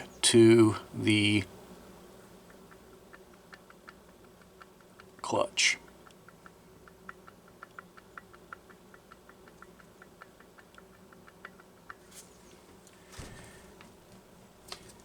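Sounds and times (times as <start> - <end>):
rapid faint clicking: 2.4 - 15.0.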